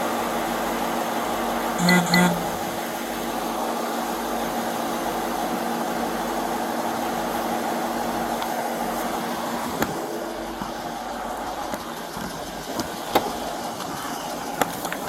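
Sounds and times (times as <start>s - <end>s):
engine hum: 0.0s - 15.0s
steady low tones: 1.7s - 3.6s
blower hiss: 2.6s - 14.8s.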